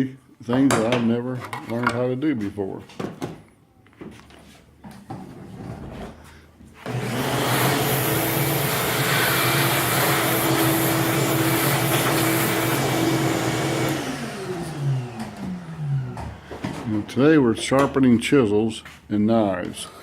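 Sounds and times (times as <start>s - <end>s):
bench grinder whirring: 6.8s - 16.9s.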